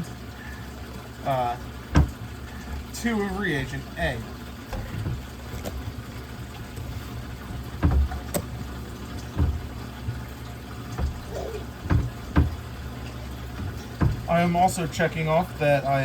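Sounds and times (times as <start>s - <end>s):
aquarium pump hum: 0.0s - 16.0s
short knocks and taps: 1.9s - 2.2s, 7.5s - 8.5s, 9.2s - 10.3s, 10.9s - 12.6s, 13.6s - 14.3s.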